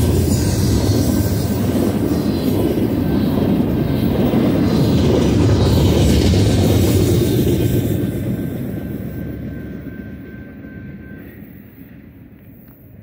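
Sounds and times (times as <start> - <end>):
freight train rumbling on rails: 0.0 - 13.0.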